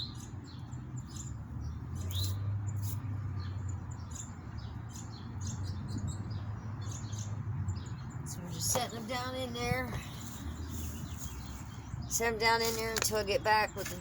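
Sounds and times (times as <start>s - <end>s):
songbirds chirping: 0.0s - 14.0s
wind rumble on microphone: 0.0s - 14.0s.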